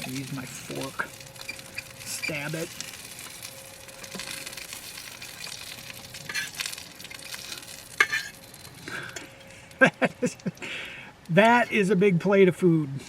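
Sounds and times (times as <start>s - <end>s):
meat sizzling on hot plate: 0.0s - 10.6s
fork scraping and clinking: 6.3s - 6.6s, 7.4s - 8.4s.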